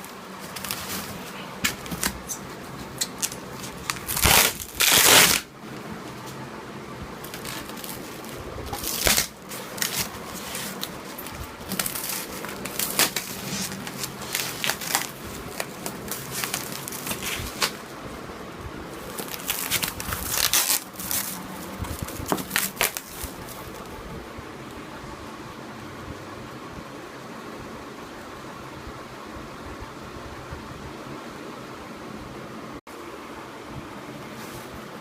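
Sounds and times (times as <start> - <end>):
packaging crinkling and rustling: 0.0 - 6.4, 7.2 - 17.9, 18.9 - 24.0
sharp crackles: 3.0 - 5.5.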